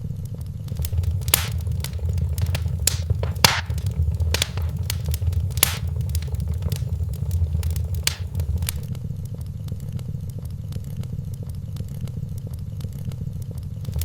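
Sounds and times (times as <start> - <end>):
low rumble of fire: 0.7 - 8.9
wood fire crackling: 0.7 - 8.9.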